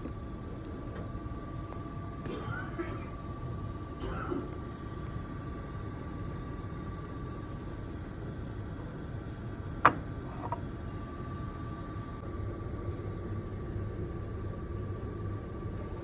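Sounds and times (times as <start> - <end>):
drinks machine humming: 0.0 - 9.0.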